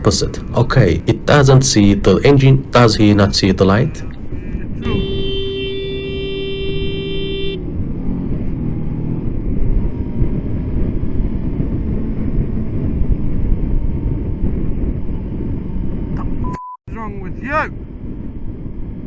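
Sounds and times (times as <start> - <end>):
motorcycle engine and wind rumble: 0.0 - 19.0
vehicle horn blast: 4.8 - 7.7.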